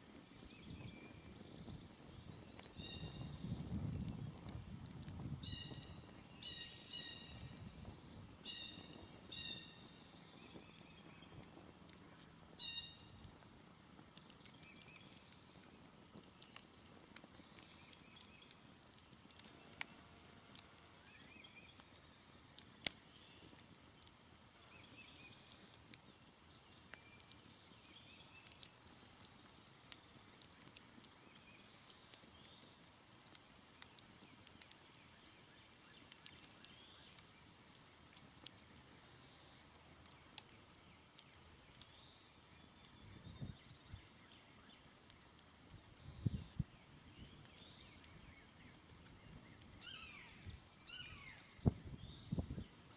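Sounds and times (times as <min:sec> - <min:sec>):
campfire crackling and popping: 0:00.0 - 0:52.9.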